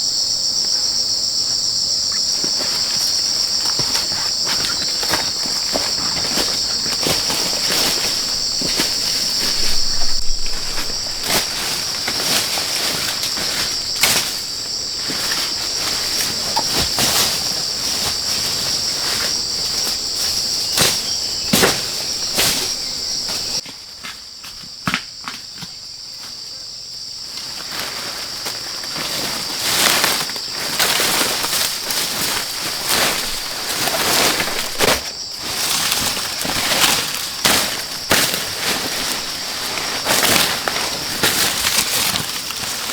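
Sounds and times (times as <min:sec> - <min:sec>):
knocks and crunches: 0:02.4 - 0:22.8, 0:29.0 - 0:42.9
high-pitched insect drone: 0:07.8 - 0:17.4.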